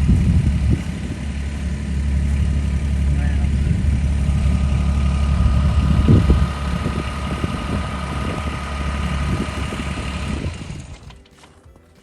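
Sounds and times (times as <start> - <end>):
snow clearing machine engine: 0.0 - 12.0.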